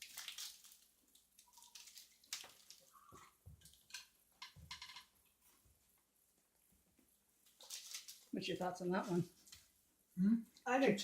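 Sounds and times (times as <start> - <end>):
wrapper crackling: 0.0 - 3.1, 7.5 - 8.4.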